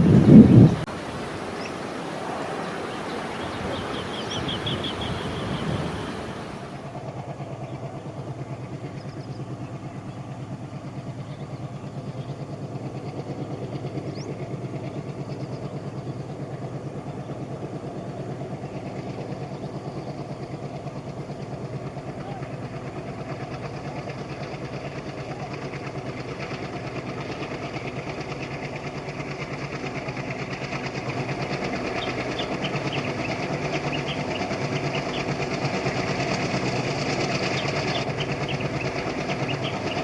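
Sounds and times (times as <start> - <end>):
diesel locomotive engine throbbing: 0.0 - 2.6, 3.5 - 40.0
bird trill: 0.0 - 6.7, 31.9 - 35.4, 37.3 - 40.0
wind noise: 0.0 - 6.8.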